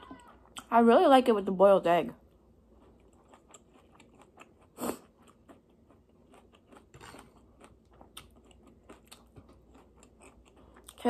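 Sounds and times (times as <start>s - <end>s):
person chewing crunchy food: 2.3s - 11.0s.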